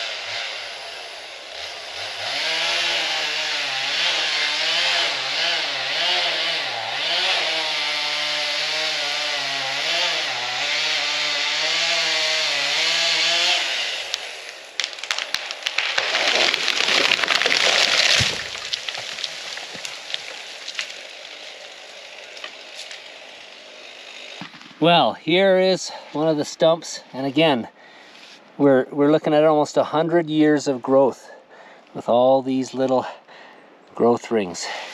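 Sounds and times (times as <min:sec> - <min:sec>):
chainsaw cutting under load: 0:00.0 - 0:24.7
sharp snaps and cracks: 0:14.1 - 0:23.2.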